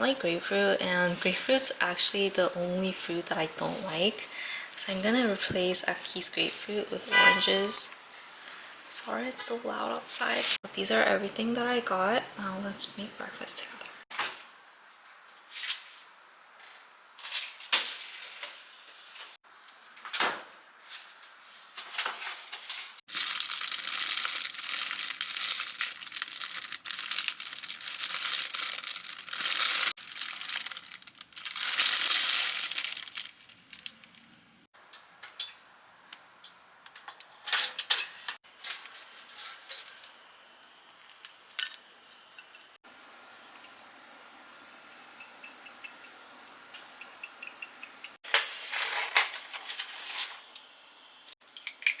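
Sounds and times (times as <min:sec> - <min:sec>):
dishes and utensils clinking: 0:07.1 - 0:07.8
packaging crinkling and tearing: 0:23.0 - 0:34.3.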